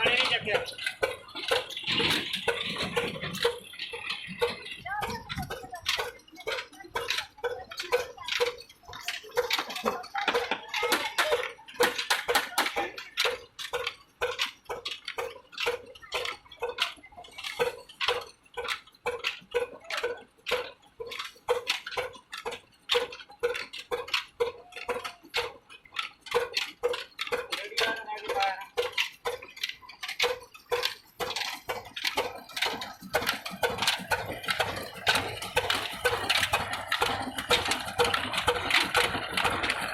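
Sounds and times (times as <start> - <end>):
diesel engine clattering: 0.0 - 39.9.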